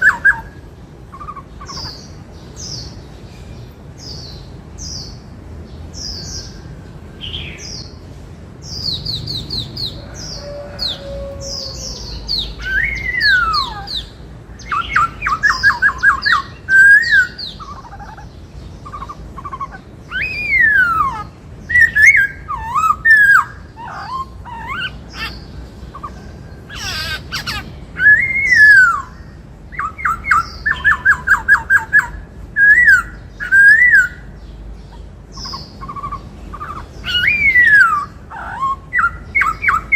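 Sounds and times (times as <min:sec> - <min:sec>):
bird singing whistled phrases: 0:10.4 - 0:18.1, 0:18.8 - 0:25.3, 0:26.7 - 0:34.3, 0:35.4 - 0:39.9.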